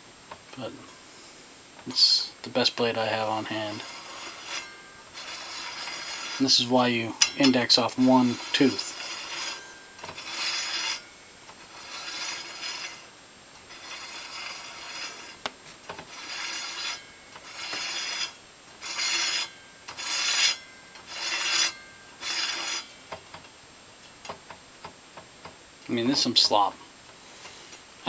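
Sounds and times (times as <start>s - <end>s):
metal parts scraping: 2.9s - 23.0s.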